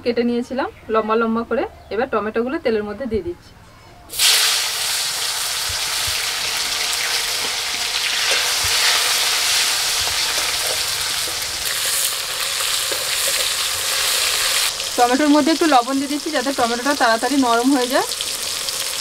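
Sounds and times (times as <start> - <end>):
tomatoes sizzling in oil: 4.1 - 19.0
metal spatula stirring: 7.0 - 14.7.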